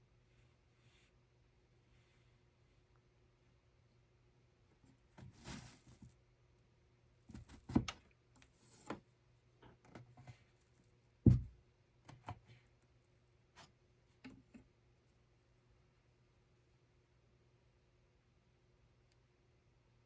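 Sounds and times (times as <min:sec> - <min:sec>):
heavy wooden thump: 0:11.3 - 0:11.6.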